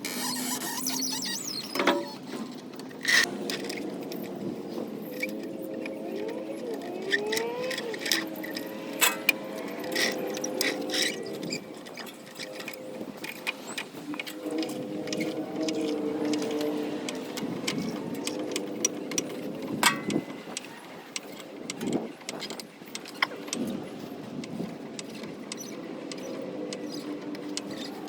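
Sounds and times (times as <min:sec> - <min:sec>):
metal tools clinking: 0:03.0 - 0:13.8.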